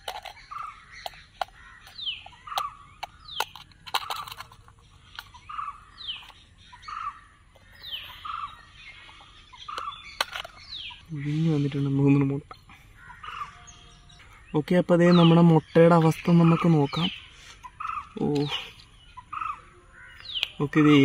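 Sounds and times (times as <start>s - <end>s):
sharp clicks: 0.0s - 5.4s
birds calling: 0.0s - 21.0s.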